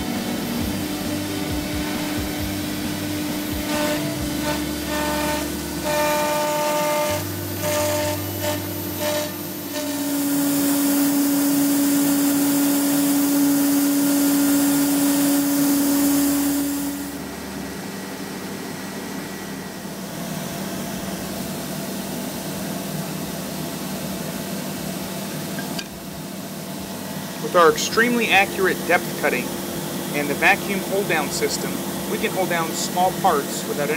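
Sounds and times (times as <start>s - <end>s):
machine hum: 0.0s - 33.9s
spindle whine: 0.0s - 33.9s
loud hiss: 27.0s - 33.9s.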